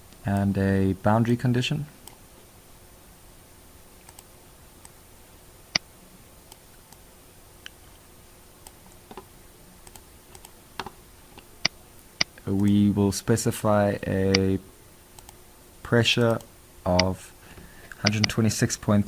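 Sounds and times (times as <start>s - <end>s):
faint steady hiss: 0.0s - 19.0s
computer input clicks: 18.0s - 18.4s.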